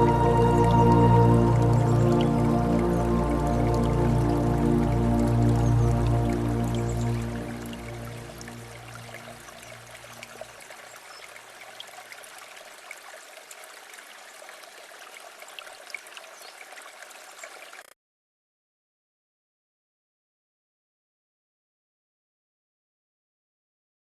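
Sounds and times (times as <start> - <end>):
low background music: 0.0 - 9.2
river water flowing and trickling: 0.0 - 18.0.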